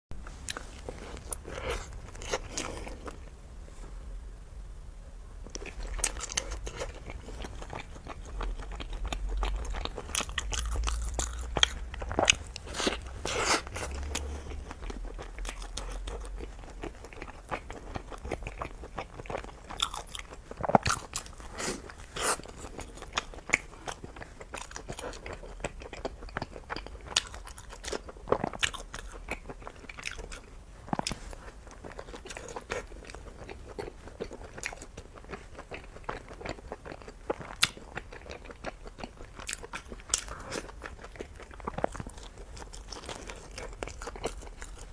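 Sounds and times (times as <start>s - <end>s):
crunchy bites and chewing: 5.6s - 44.9s
low rumble: 6.6s - 16.9s.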